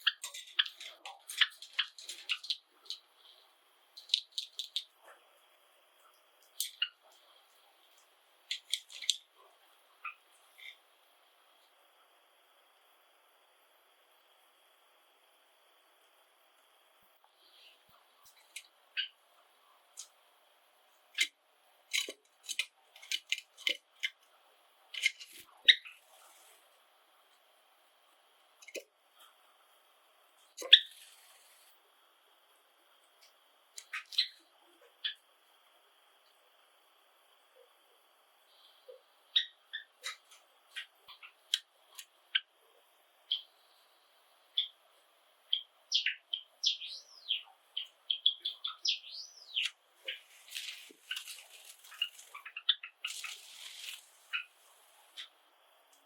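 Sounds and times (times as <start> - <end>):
sparrows chirping: 0.0 - 4.9, 33.8 - 35.2, 45.5 - 55.4.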